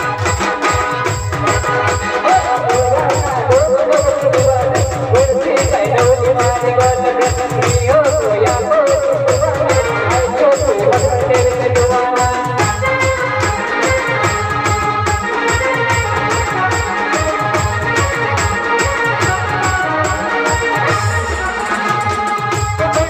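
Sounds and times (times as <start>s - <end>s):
quick drum beat: 0.0s - 18.6s
band music: 0.0s - 23.0s
wavering lead melody: 7.3s - 23.0s.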